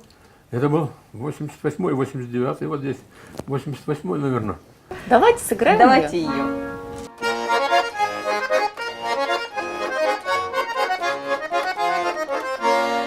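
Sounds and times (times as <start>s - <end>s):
button accordion playing lively tune: 5.2s - 13.0s.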